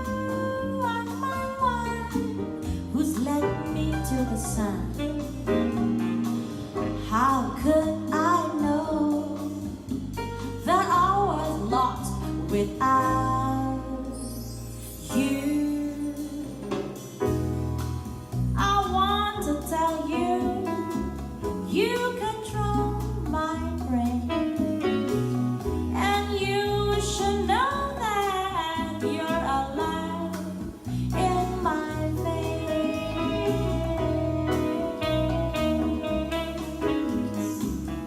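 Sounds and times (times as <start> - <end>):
jazz ballad through speakers: 0.0 - 38.0.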